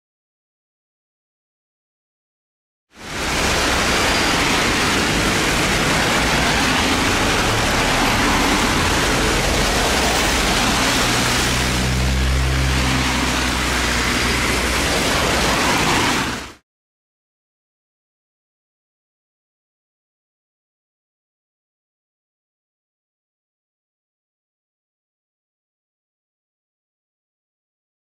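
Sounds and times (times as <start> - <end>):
diesel locomotive engine hum: 3.0 - 16.6
rain and wind rushing: 3.0 - 16.6.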